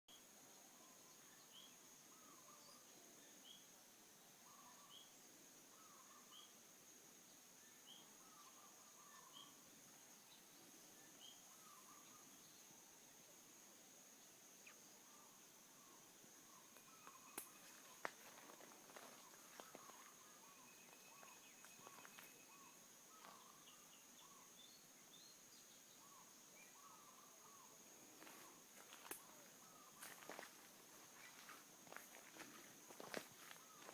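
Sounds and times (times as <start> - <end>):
high insect whine: 0.2 - 33.9
low bird calls: 14.6 - 24.5, 26.0 - 33.9.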